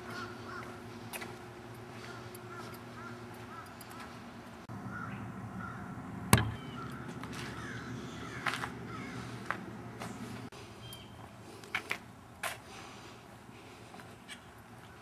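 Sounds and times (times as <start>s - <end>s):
birds calling: 0.0s - 12.0s
low hum: 0.0s - 12.4s
sharp knock: 6.3s - 6.6s.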